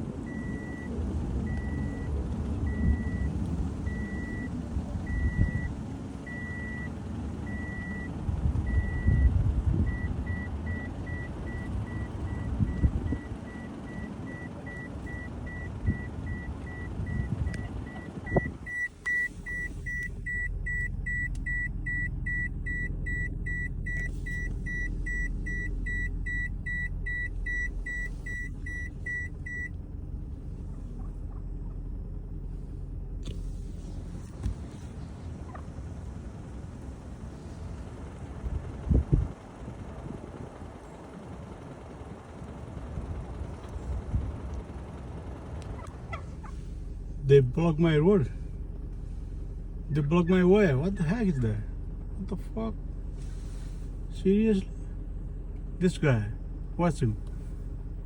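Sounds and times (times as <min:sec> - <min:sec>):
car road and engine rumble: 0:00.0 - 0:58.0
parking sensor beeping: 0:00.2 - 0:30.0.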